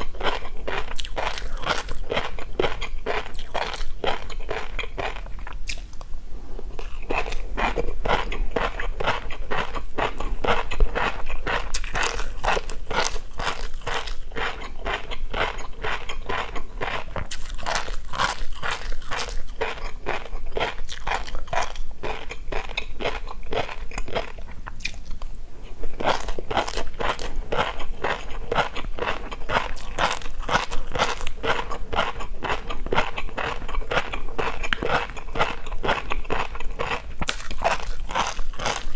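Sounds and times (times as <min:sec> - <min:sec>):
crunchy chewing: 0:00.0 - 0:06.0, 0:06.8 - 0:38.9.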